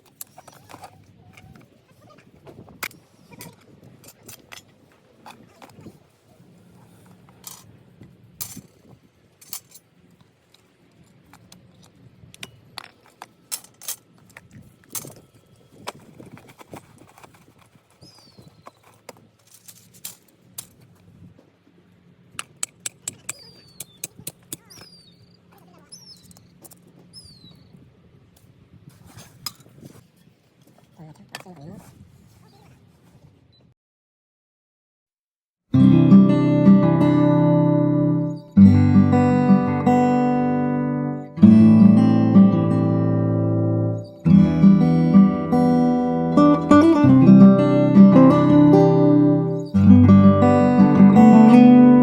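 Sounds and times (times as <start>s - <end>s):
bird calling: 23.2s - 26.4s, 48.2s - 50.6s.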